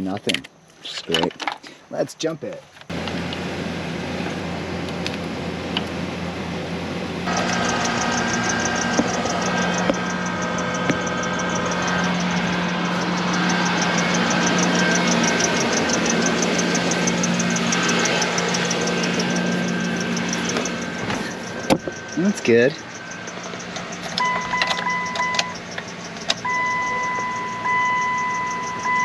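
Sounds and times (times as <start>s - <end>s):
car engine running: 2.9s - 29.0s
fast even ticking: 7.3s - 29.0s.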